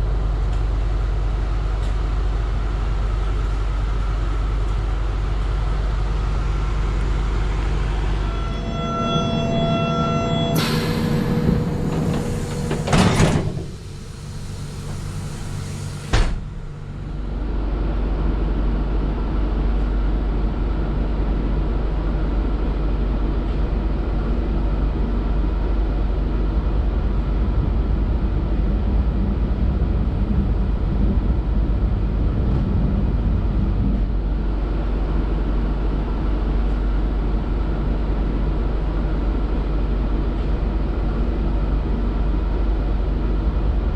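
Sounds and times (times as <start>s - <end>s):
train rumbling: 0.0s - 43.9s
sliding train door banging shut: 8.7s - 16.7s.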